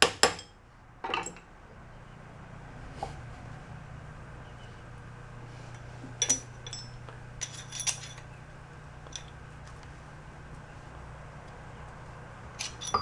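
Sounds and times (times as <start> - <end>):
steady low hum: 0.8 - 13.0
hand tools clinking on steel: 3.0 - 13.0.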